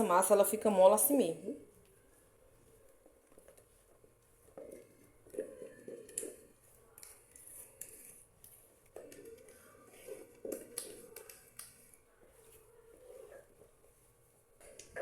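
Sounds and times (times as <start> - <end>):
dough stirred in a bowl: 0.0 - 15.0
sticky scrapes and clicks: 4.5 - 13.7.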